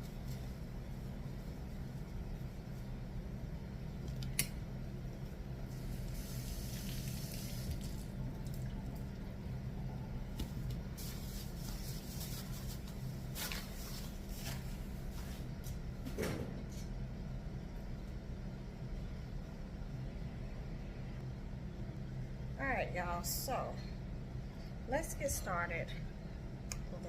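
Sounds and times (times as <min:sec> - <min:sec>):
steady low hum: 0:00.0 - 0:27.0
water running from a tap: 0:06.0 - 0:08.9.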